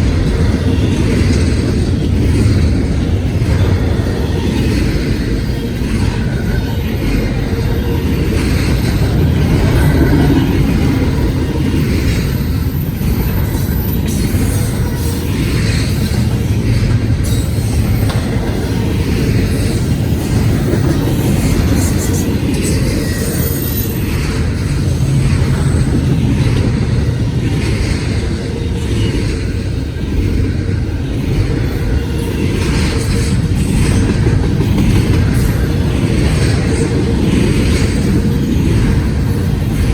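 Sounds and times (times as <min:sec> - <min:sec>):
train wheels on rails: 0:00.0 - 0:39.9.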